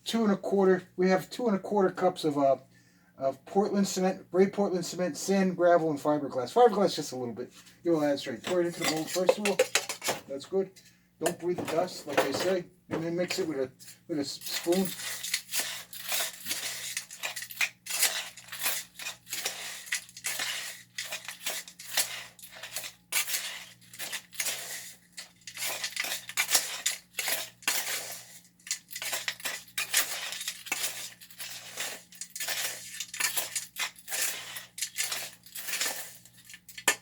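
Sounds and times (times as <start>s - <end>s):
spoon scraping dry concrete mix: 7.9s - 10.1s, 11.2s - 37.0s.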